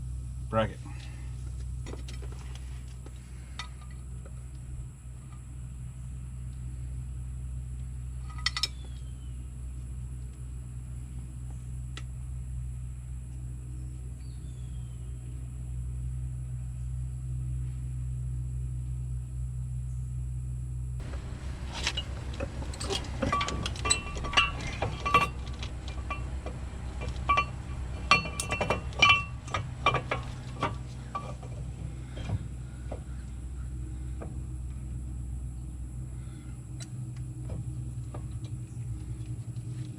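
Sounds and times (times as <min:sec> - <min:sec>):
steady low hum: 0:00.0 - 0:39.9
metal tools clinking: 0:21.0 - 0:32.4.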